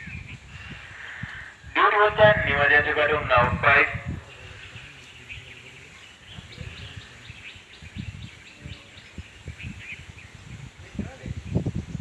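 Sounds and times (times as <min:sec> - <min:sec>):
small birds chirping: 0:00.0 - 0:01.8, 0:03.6 - 0:12.0.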